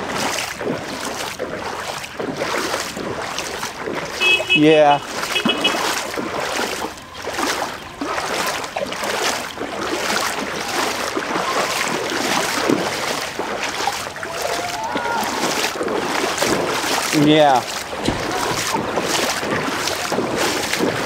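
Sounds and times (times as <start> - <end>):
legs wading through water: 0.0 - 21.0.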